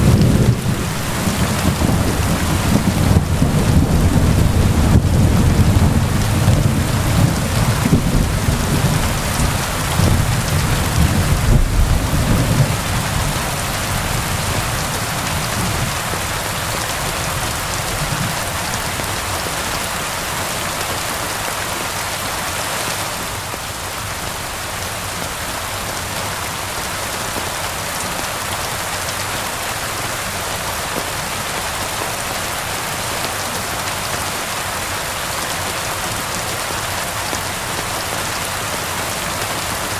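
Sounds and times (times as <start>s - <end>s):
low rolling thunder: 0.0s - 16.2s
steady rain falling: 0.0s - 39.9s.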